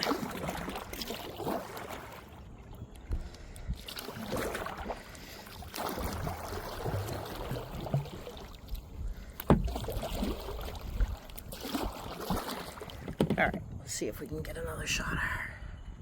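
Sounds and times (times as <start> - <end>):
paddle splashing in water: 0.0 - 14.0
paddle knocking on kayak: 6.7 - 8.4, 9.4 - 13.8.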